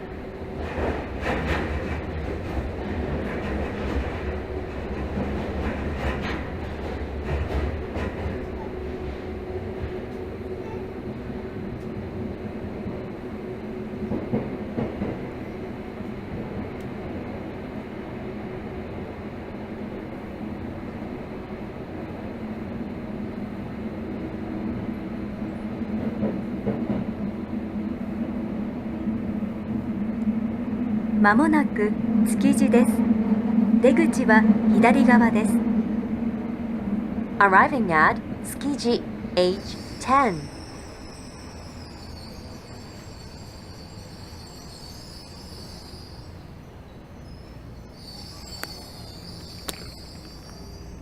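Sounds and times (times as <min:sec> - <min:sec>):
subway train rumbling: 0:00.0 - 0:51.0
high-pitched wheel squeal: 0:39.6 - 0:46.6, 0:47.2 - 0:51.0.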